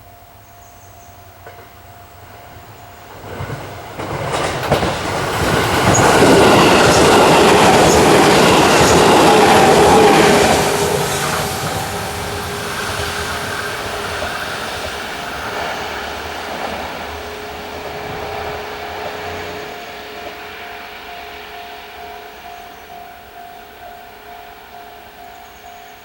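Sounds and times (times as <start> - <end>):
train running noise: 0.0 - 26.0.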